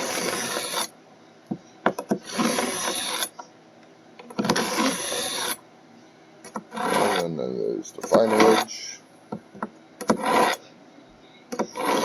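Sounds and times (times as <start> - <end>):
knife rasping through sharpener: 0.0 - 0.9, 2.2 - 3.4, 4.5 - 5.6, 6.5 - 7.4, 8.0 - 8.8, 10.0 - 10.6, 11.6 - 12.0.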